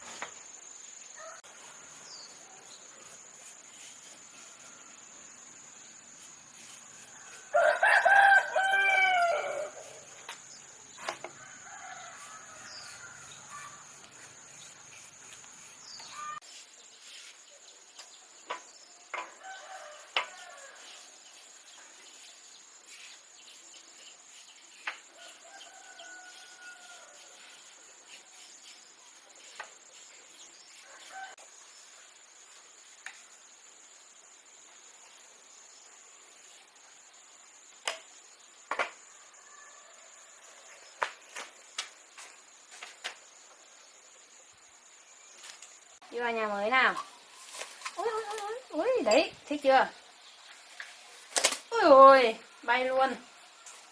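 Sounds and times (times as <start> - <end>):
high insect drone: 0.0 - 17.2
rooster crowing: 7.1 - 10.1, 11.3 - 13.8, 19.4 - 21.0, 25.2 - 27.4.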